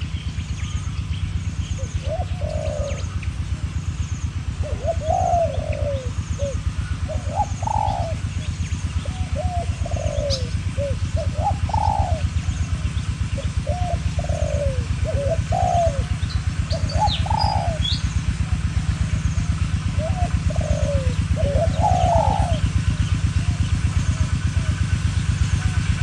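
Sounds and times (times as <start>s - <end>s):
small bird chirping: 0.0s - 18.2s
low rapid throbbing: 0.0s - 26.0s
doves cooing: 1.3s - 26.0s.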